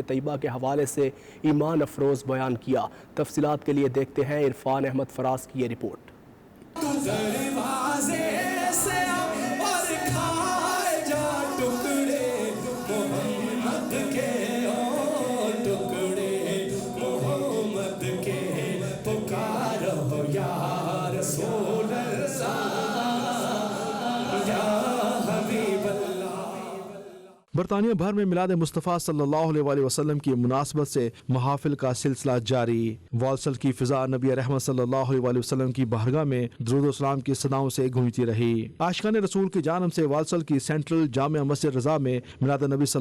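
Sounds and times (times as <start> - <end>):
men singing a devotional hymn: 6.8 - 27.4.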